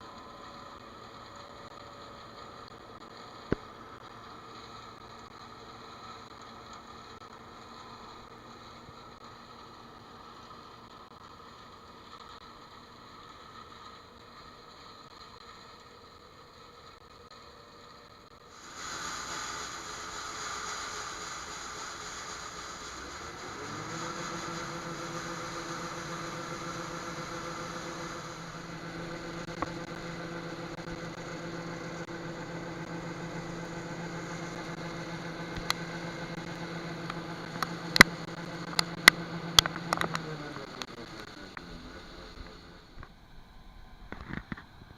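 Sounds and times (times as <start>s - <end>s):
farm machine engine running: 18.6s - 44.6s.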